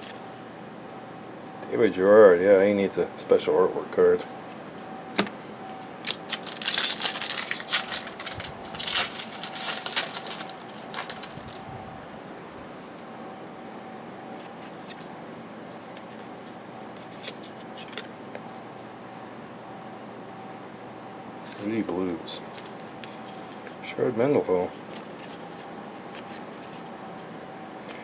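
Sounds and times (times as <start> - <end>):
faint steady hum: 0.0 - 28.0
card wrapper crinkling: 6.0 - 11.7.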